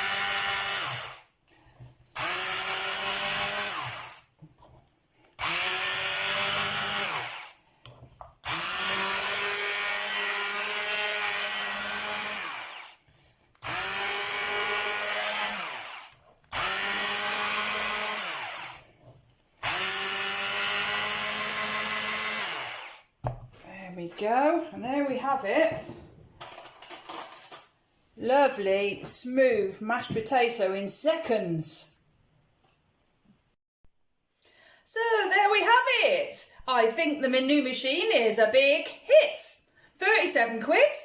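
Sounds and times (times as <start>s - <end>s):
hand blender motor whining: 0.0s - 1.2s, 2.2s - 4.3s, 5.4s - 7.6s, 8.4s - 13.0s, 13.6s - 18.9s, 19.6s - 23.1s.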